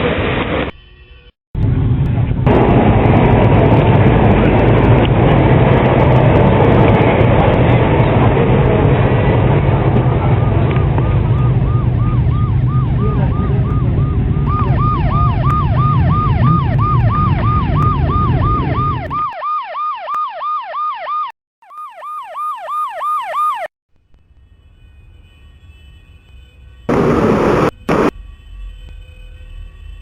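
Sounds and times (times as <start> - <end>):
heavy vehicle and road rumble: 0.0 - 19.3, 24.0 - 30.0
police siren yelping: 10.0 - 23.7.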